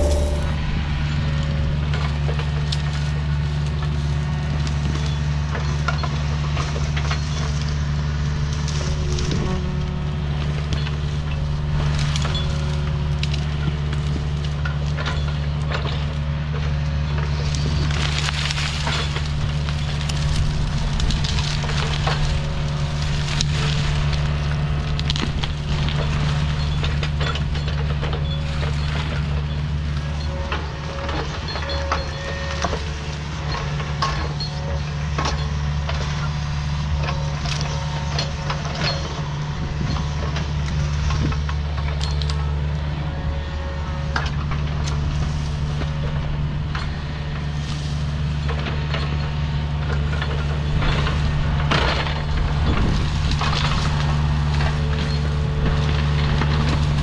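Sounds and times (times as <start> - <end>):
excavator engine running under load: 0.0 - 57.0
branches cracking and snapping: 17.2 - 30.1, 44.4 - 57.0.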